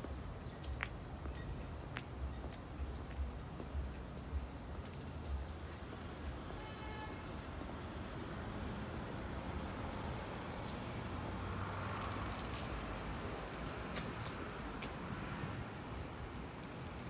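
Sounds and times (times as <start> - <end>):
street traffic rumble: 0.0 - 17.0
vehicle going by: 8.5 - 15.8.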